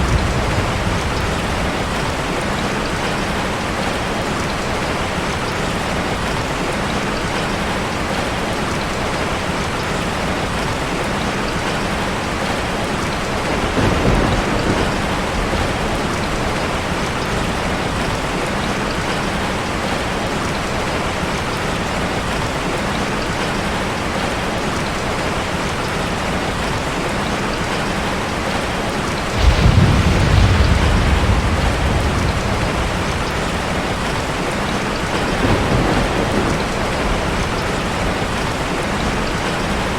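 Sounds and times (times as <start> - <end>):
thunder rumbling: 0.0 - 3.9, 13.4 - 19.6, 29.2 - 39.9
heavy rain on a car: 0.0 - 39.9.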